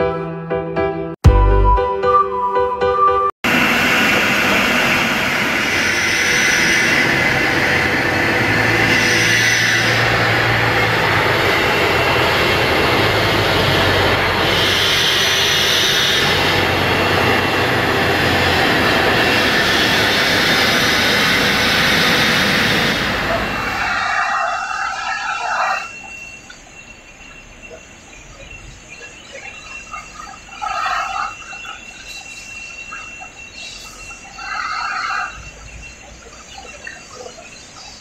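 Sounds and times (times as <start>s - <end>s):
industrial vacuum cleaner running: 3.5s - 23.8s.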